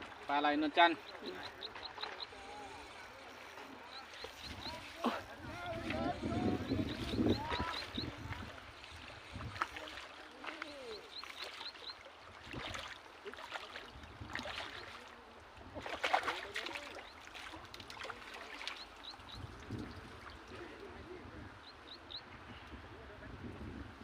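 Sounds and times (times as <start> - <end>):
bird chirping: 6.1 - 8.2.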